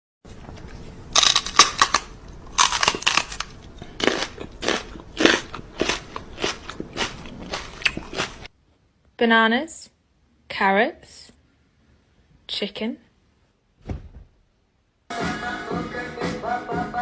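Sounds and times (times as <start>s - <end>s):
pet crunching something hard: 0.6s - 8.5s.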